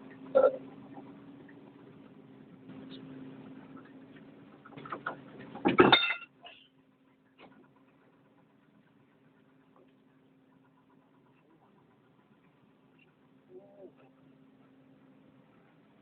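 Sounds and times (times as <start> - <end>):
steady low hum: 0.0 - 16.0
metal tools knocking and clanking: 4.7 - 6.3.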